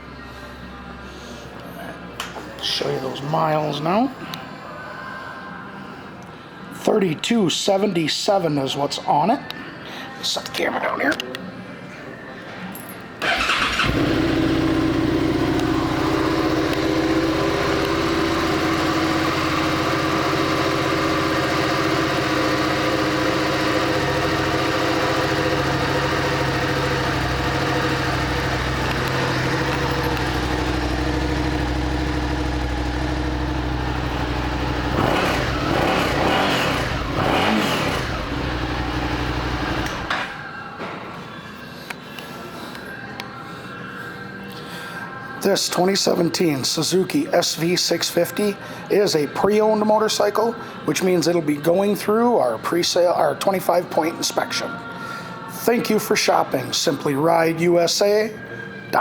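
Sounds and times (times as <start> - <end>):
motorcycle engine idling and revving: 13.2 - 40.4.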